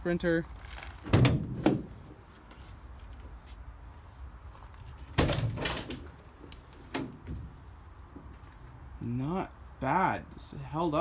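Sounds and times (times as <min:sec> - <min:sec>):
van door metal clunk: 0:01.0 - 0:02.0, 0:05.1 - 0:06.0.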